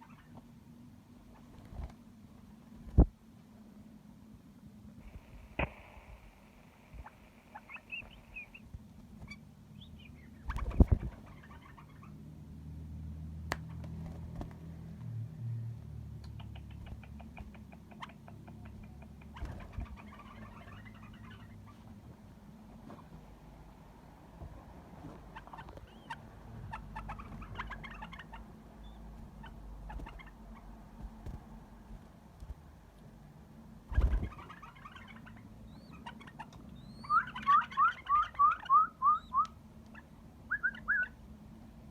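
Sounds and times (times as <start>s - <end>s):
canary chirping and twittering: 0.0s - 0.4s, 7.0s - 12.2s, 16.3s - 21.9s, 25.3s - 30.9s, 33.9s - 41.2s
steady low hum: 0.0s - 37.0s.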